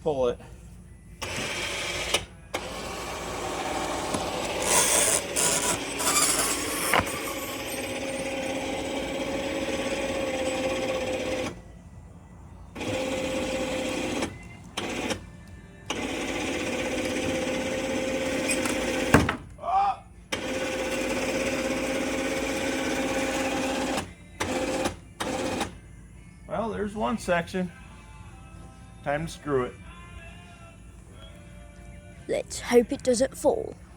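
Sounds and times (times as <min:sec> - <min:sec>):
electric winch motor whine: 0:01.1 - 0:19.2, 0:20.3 - 0:25.8.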